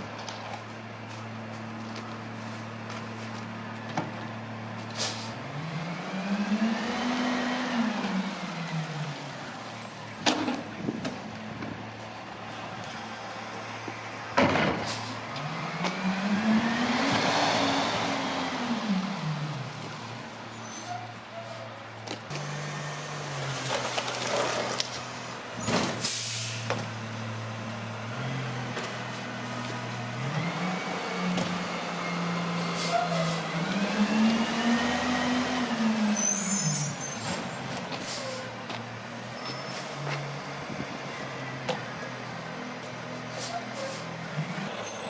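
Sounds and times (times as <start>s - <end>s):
air brake hiss: 4.9s - 5.4s, 26.0s - 26.7s
garbage truck diesel engine revving: 26.3s - 36.8s.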